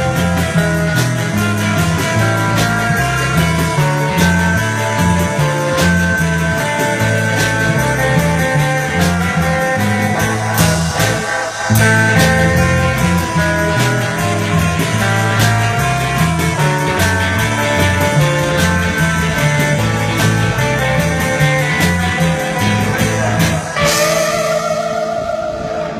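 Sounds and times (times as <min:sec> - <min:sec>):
lead electric guitar: 0:00.0 - 0:25.9
rock band playing: 0:00.0 - 0:25.9
cymbal crash: 0:08.8 - 0:16.4, 0:22.4 - 0:25.9.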